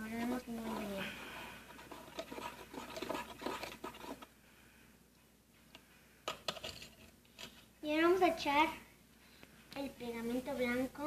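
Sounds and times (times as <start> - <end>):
spoon scraping container: 0.2 - 4.3.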